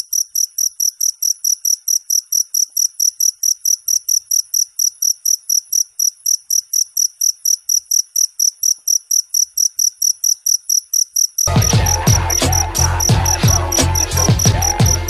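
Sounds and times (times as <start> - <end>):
cricket chirping: 0.0 - 15.0
music with heavy beat: 11.5 - 15.0.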